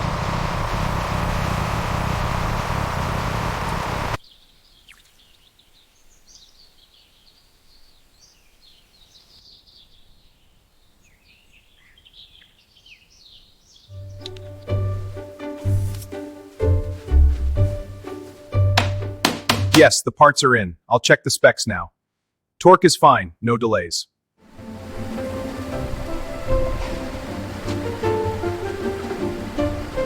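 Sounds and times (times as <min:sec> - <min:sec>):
faint bird chirps: 0:04.2 - 0:14.3
music: 0:13.9 - 0:19.8, 0:24.4 - 0:30.0.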